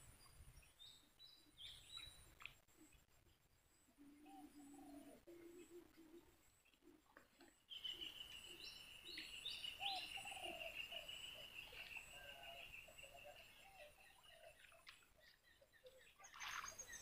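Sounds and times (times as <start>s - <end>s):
faint bird calls: 3.9s - 7.0s, 7.7s - 17.0s.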